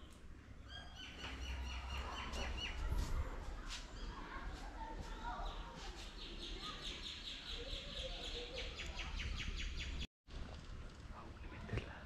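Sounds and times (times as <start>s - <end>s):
bird chirping: 0.0s - 2.9s, 5.3s - 10.1s
wind rumble on microphone: 2.4s - 3.6s.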